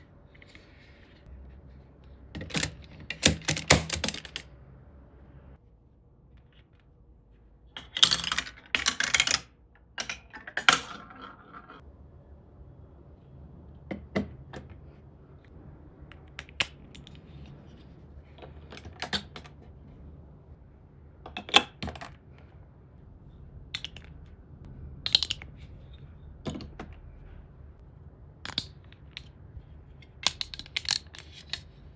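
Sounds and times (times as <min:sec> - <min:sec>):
plastic bricks clicking and clattering: 0:02.4 - 0:04.5, 0:07.8 - 0:11.8, 0:30.2 - 0:31.8.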